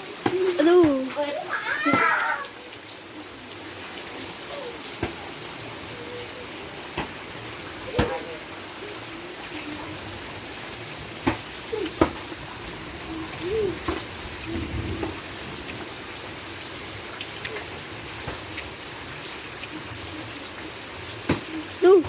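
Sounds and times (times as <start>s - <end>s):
heavy rain falling: 0.0s - 22.0s
faint distant voices: 0.1s - 15.3s.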